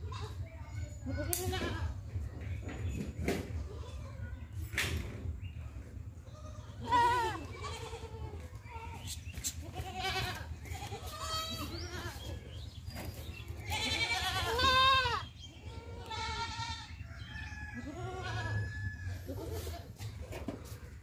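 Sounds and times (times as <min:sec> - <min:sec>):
goats bleating: 0:06.4 - 0:12.3, 0:13.6 - 0:17.0, 0:17.8 - 0:18.6.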